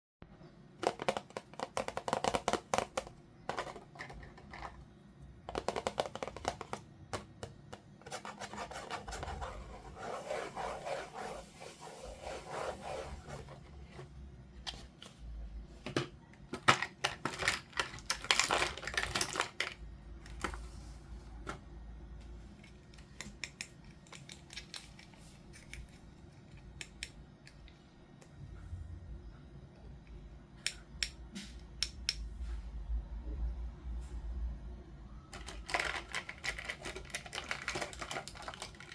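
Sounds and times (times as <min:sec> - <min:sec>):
toy packaging rustling: 0:00.8 - 0:04.8, 0:05.5 - 0:06.8, 0:16.6 - 0:20.6, 0:35.4 - 0:38.9.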